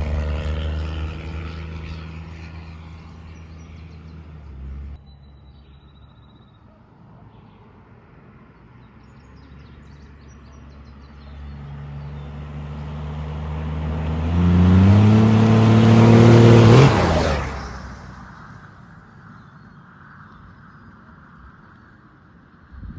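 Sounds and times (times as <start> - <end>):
diesel pickup truck passing: 0.0 - 5.0, 10.7 - 19.0.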